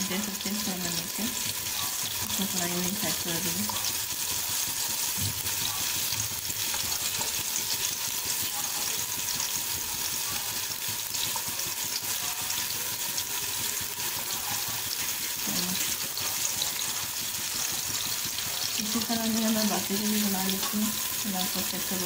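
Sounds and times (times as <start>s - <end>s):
patties sizzling in oil: 0.0s - 22.0s.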